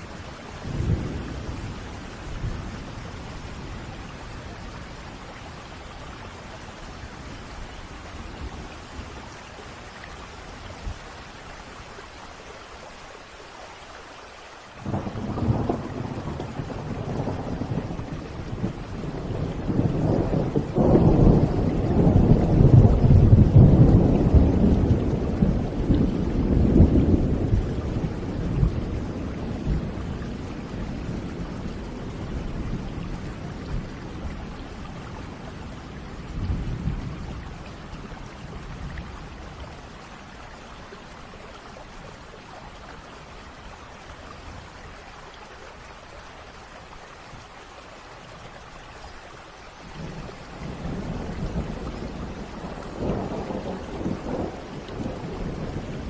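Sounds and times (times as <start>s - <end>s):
thunder rumbling: 0.0s - 5.7s, 14.8s - 40.3s, 49.8s - 56.0s
steady rain hiss: 0.0s - 56.0s.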